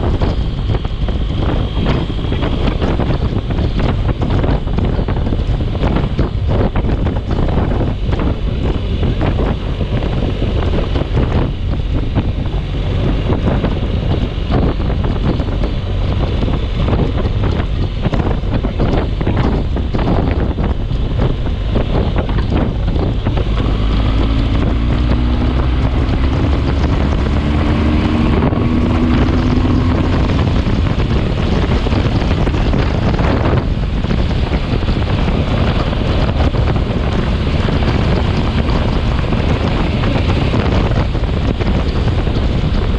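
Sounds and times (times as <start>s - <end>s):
storm wind buffeting microphone: 0.0s - 42.9s.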